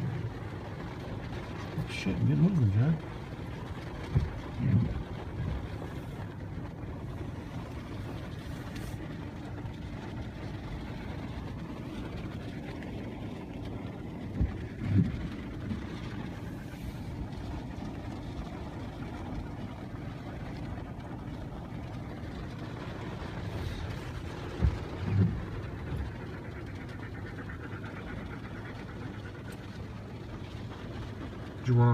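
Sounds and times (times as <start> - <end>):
car road and engine noise: 0.0 - 31.9
low thumps: 14.3 - 16.2, 23.9 - 27.0.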